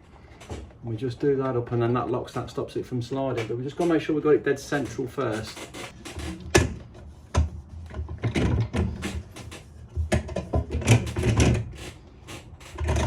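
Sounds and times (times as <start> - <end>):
heater bar knocking and scraping: 3.2 - 13.0.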